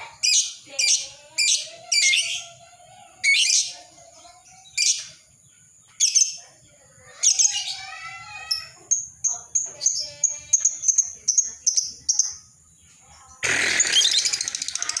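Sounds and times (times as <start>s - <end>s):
lovebird chirping and chattering: 0.0s - 2.6s, 3.2s - 6.5s, 7.1s - 15.0s.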